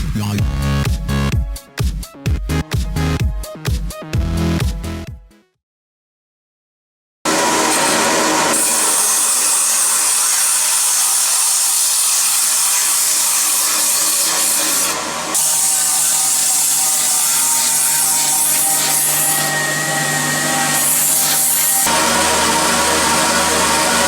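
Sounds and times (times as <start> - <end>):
grinding machine on sheet metal: 7.3 - 24.0.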